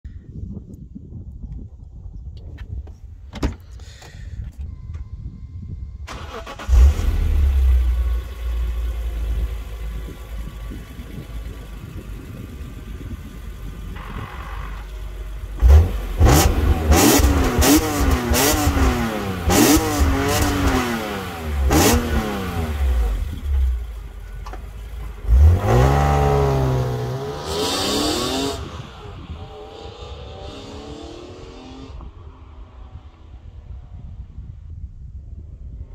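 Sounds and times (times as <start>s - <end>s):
car engine revving and accelerating: 15.5s - 23.7s, 25.2s - 33.5s.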